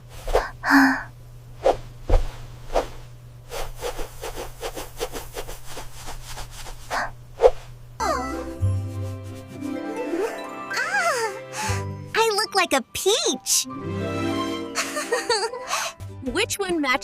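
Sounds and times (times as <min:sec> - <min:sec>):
low steady hum: 0:00.0 - 0:12.3
soft short strokes: 0:01.6 - 0:07.8.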